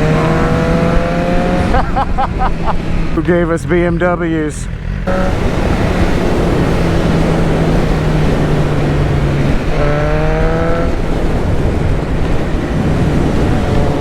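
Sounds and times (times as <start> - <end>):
motorcycle engine running: 0.0 - 14.0
wind noise on microphone: 5.0 - 14.0.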